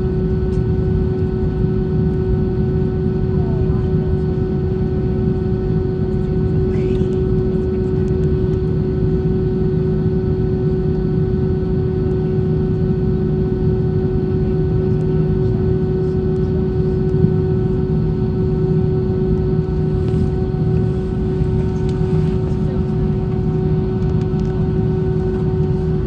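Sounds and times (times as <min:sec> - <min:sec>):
airplane cabin engine drone: 0:00.0 - 0:26.0.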